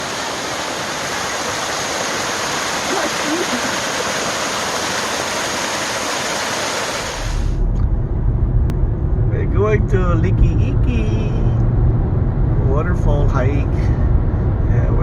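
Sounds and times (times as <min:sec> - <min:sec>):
waterfall pouring: 0:00.0 - 0:07.6.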